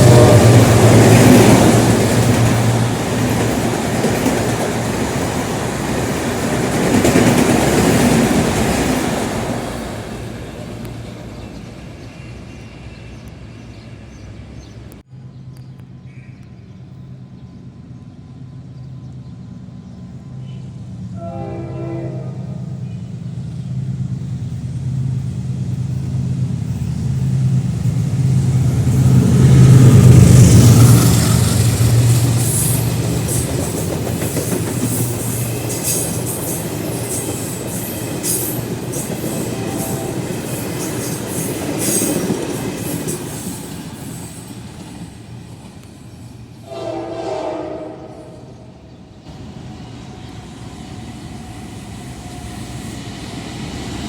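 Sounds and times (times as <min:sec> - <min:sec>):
train horn: 0:00.0 - 0:02.9, 0:20.4 - 0:23.1, 0:39.2 - 0:40.8, 0:46.6 - 0:48.8
diesel locomotive engine droning: 0:00.0 - 0:54.0
train wheels clicking over rail joints: 0:24.4 - 0:46.2.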